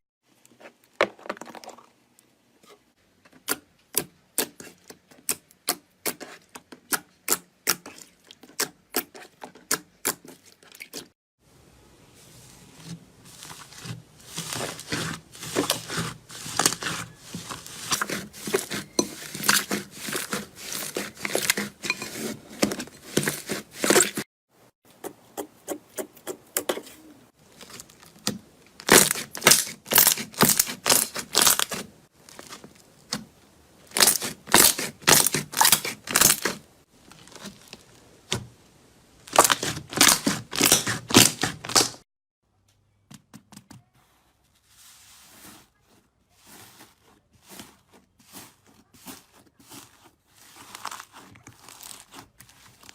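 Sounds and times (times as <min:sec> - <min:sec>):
crunchy material crackling: 0:12.2 - 0:24.3, 0:27.3 - 0:38.4, 0:39.2 - 0:42.0, 0:44.6 - 0:52.9.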